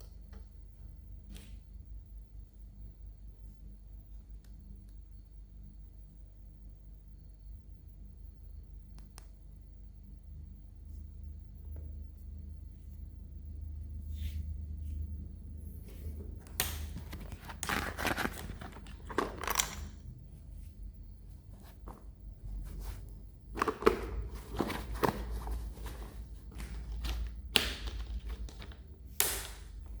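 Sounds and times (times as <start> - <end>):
packaging crinkling and tearing: 16.8 - 19.9.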